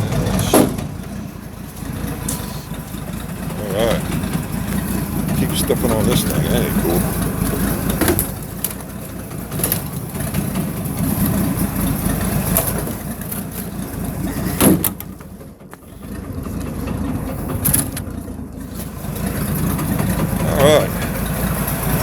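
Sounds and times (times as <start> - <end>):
drivetrain knocks and clunks: 0.0 - 20.4
truck engine idling: 0.0 - 22.0.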